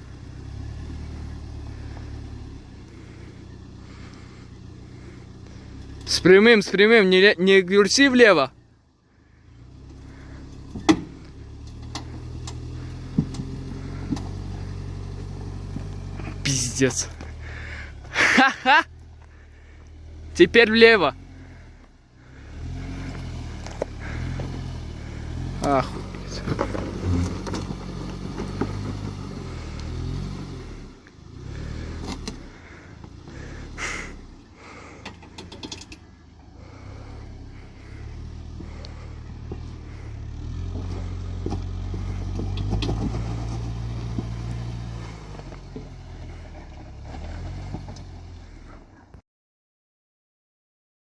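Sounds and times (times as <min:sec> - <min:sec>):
vehicle engine droning: 0:00.0 - 0:49.2
sharp knocks and clunks: 0:10.7 - 0:14.5.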